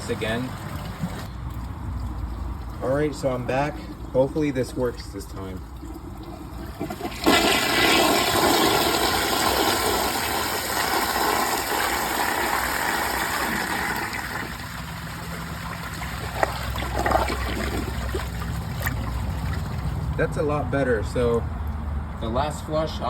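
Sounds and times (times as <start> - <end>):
toilet water rushing: 5.7 - 20.1
toilet flush click: 6.8 - 14.7.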